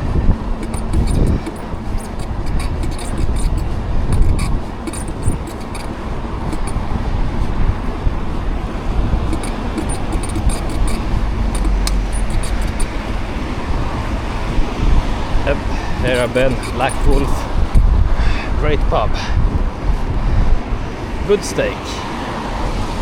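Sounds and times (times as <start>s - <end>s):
light rattling clicks: 0.0s - 13.2s
road traffic: 0.0s - 23.0s
wind rumbling on microphone: 0.0s - 23.0s.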